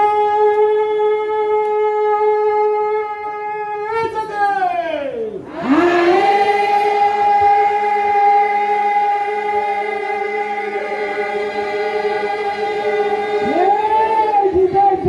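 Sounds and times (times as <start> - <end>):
voices singing a long note: 5.4 - 15.0.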